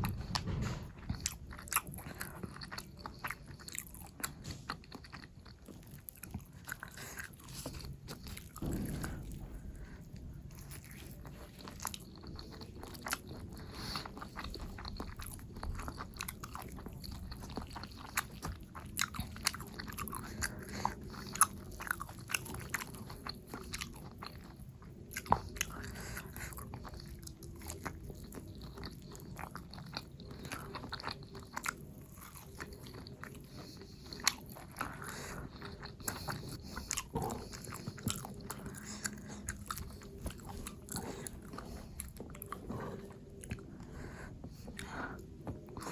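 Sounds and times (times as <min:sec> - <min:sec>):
biting and chewing crunches: 0:00.0 - 0:45.9.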